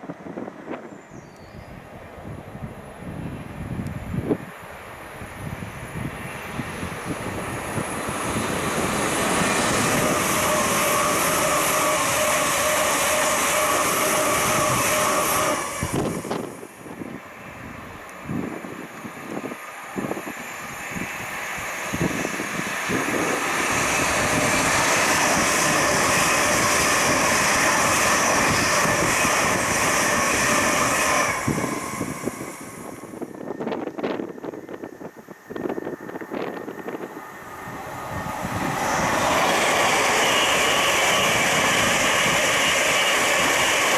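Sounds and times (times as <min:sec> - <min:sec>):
passenger trains passing at speed: 0:00.0 - 0:43.9.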